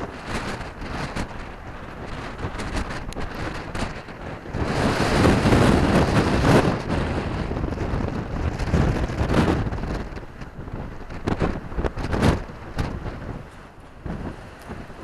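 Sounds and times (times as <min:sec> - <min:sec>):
strong wind gusting over microphone: 0:00.0 - 0:15.0.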